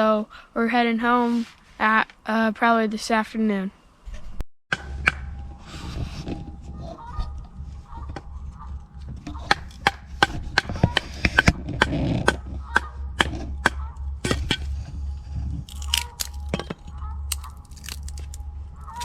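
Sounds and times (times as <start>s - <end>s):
dry wood cracking and snapping: 15.6s - 19.0s.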